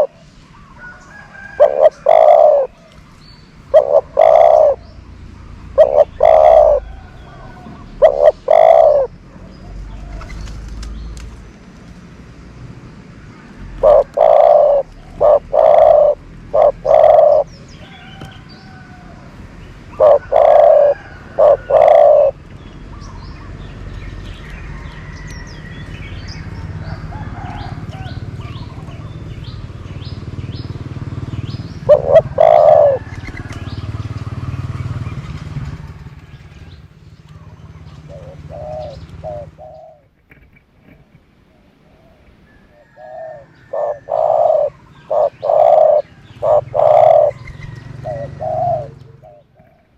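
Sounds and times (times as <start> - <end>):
dove cooing: 0.0 - 3.0, 3.7 - 9.2, 13.7 - 22.4, 31.1 - 33.7, 37.3 - 40.1, 41.7 - 49.9
small birds chirping: 0.0 - 12.0, 13.2 - 40.1, 40.9 - 49.9.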